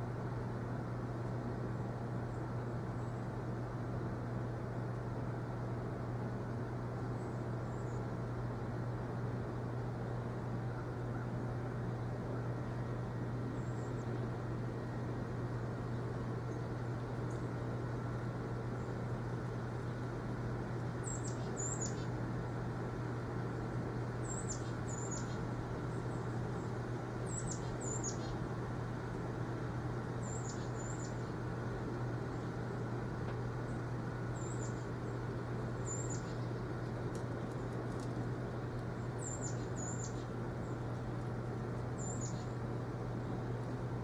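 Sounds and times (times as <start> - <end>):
low hum and rumble: 0.0 - 44.0
small bird chirping: 21.0 - 22.2, 24.2 - 28.5, 30.1 - 31.4, 33.7 - 36.8, 39.0 - 40.8, 42.0 - 42.6.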